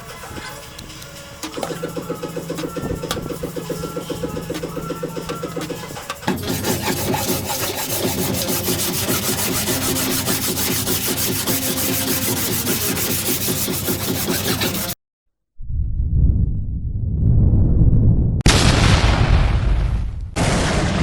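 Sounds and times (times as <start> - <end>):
abrasive tool rasping on sheet metal: 1.4 - 15.0.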